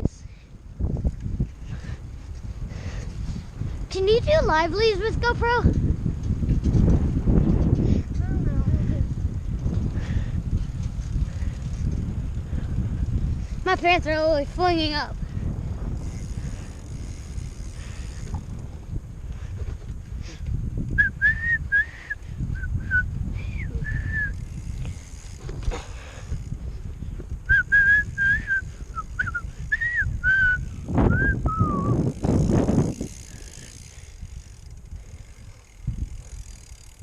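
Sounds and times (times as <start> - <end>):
wind rumble on microphone: 0.0 - 37.0
person whistling short notes: 21.0 - 24.4, 27.5 - 32.0.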